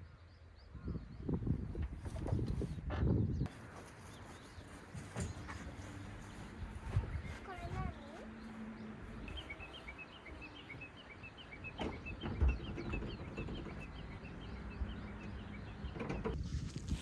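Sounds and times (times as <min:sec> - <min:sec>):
bird high chirps: 0:04.1 - 0:16.3.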